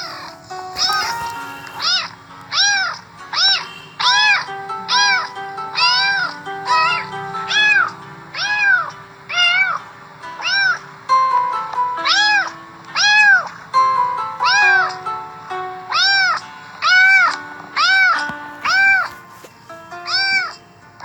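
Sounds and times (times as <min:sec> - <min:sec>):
cat meowing: 0:00.0 - 0:09.8, 0:10.4 - 0:10.8, 0:12.0 - 0:13.5, 0:14.4 - 0:14.9, 0:15.9 - 0:19.2, 0:20.0 - 0:20.6
background music: 0:00.0 - 0:21.0.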